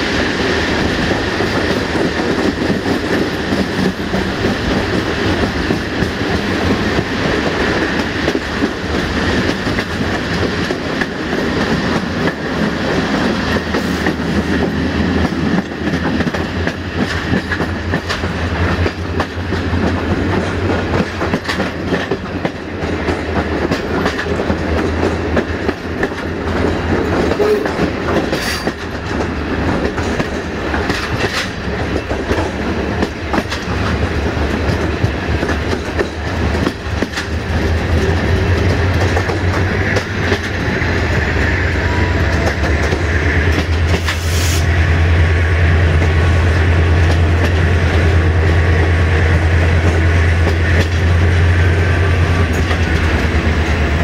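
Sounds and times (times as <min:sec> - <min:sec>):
clickety-clack over rail joints: 0:00.0 - 0:54.0
train wheels rumbling on rail: 0:00.0 - 0:54.0.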